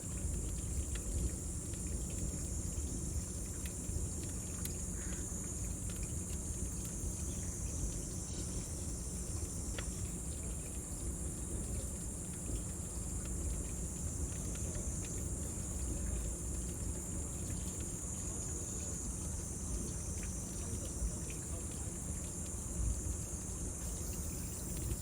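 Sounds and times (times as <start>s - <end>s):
cicadas droning: 0.0s - 25.0s.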